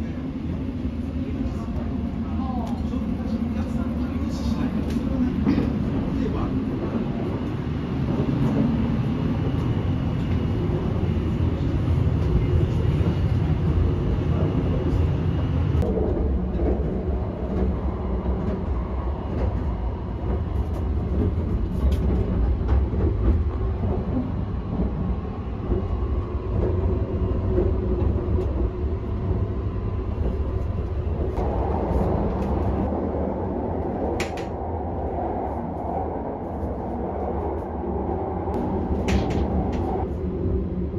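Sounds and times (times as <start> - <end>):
train rumbling: 0.0 - 40.9.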